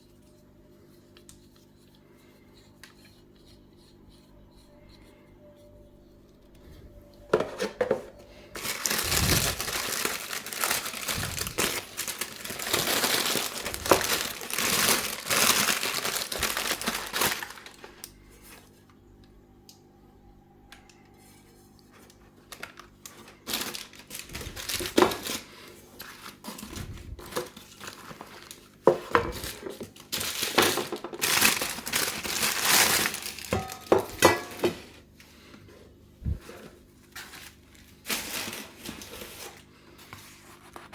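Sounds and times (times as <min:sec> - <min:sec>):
packaging crinkling: 0:08.5 - 0:18.5, 0:22.4 - 0:34.0, 0:37.1 - 0:39.6.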